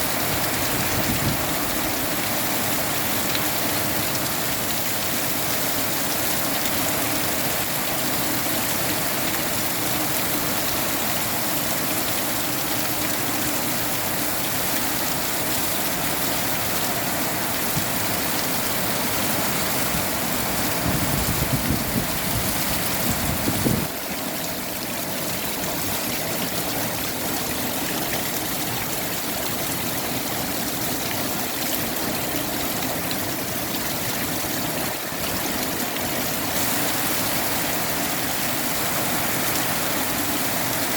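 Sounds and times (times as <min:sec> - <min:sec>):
steady rain: 0:00.0 - 0:40.9
wind buffeting microphone: 0:00.5 - 0:01.6, 0:20.4 - 0:23.9.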